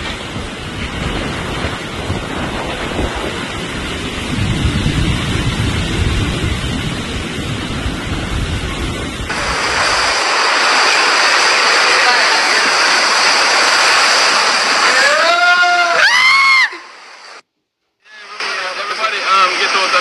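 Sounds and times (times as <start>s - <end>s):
wind gusts buffeting microphone: 0.0s - 15.1s
heavy rain: 0.0s - 17.4s, 18.1s - 20.0s.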